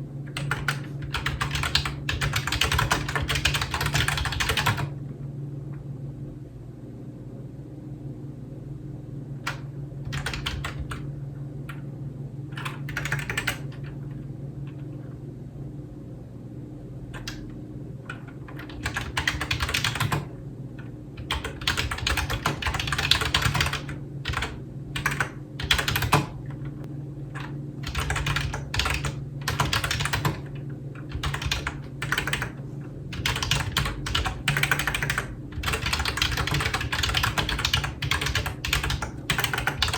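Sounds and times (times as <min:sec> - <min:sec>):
steady low hum: 0:00.0 - 0:39.9
typing on computer keyboard: 0:00.3 - 0:04.9, 0:09.5 - 0:11.0, 0:12.6 - 0:13.9, 0:18.5 - 0:20.3, 0:21.2 - 0:26.4, 0:27.4 - 0:30.5, 0:31.1 - 0:39.9.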